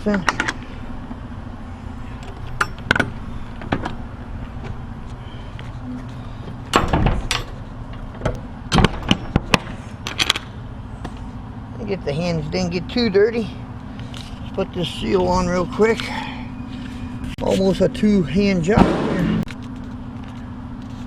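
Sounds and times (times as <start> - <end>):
truck engine idling: 0.0 - 21.0
metal doors clanking shut: 6.5 - 10.5.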